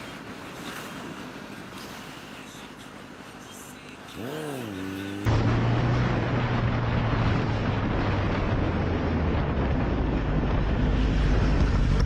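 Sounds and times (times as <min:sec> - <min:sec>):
wind noise on microphone: 0:05.4 - 0:12.0.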